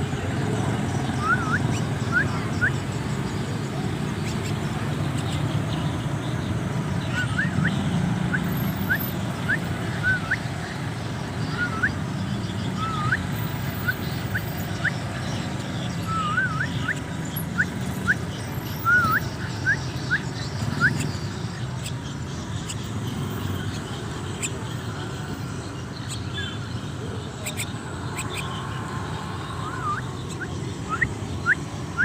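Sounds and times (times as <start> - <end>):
bird chick cheeping: 11.4 - 12.0, 12.7 - 24.6, 27.4 - 28.6, 29.5 - 32.0.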